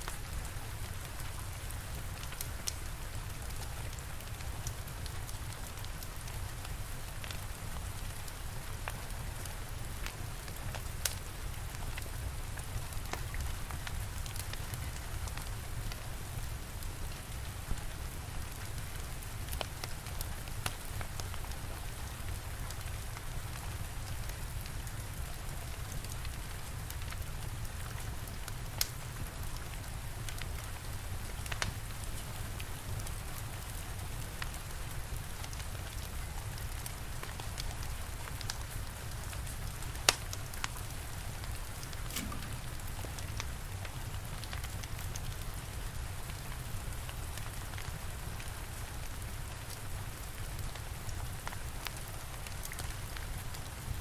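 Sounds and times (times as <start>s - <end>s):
steady rain falling: 0.0s - 54.0s
fire crackling and popping: 0.1s - 54.0s.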